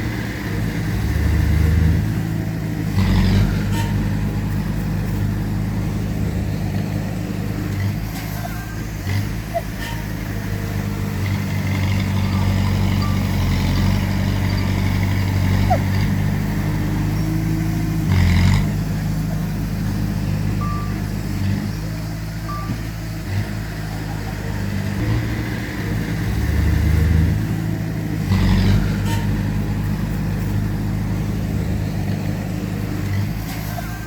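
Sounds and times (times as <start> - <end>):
diesel engines of heavy machinery: 0.0 - 34.0
short beeps: 12.3 - 13.5, 20.6 - 21.0, 22.5 - 22.8.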